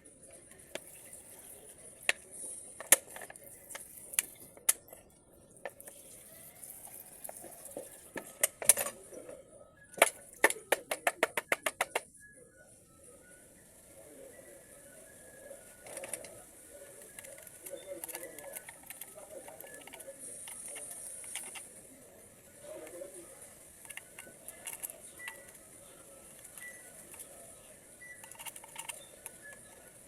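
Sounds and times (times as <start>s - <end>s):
small metal parts clinking: 28.0s - 30.0s.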